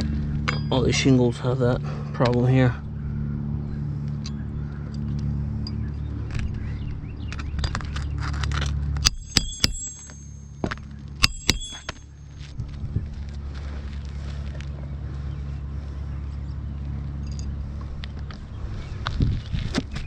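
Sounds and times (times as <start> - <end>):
steady low hum: 0.0 - 20.0
hammer striking nails: 9.0 - 12.0.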